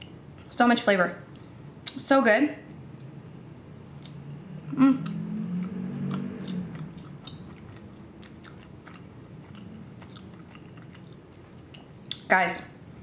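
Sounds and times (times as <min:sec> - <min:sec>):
person chewing with crunching clicks: 0:04.0 - 0:04.2, 0:05.0 - 0:12.3
person humming mmm: 0:04.7 - 0:06.9.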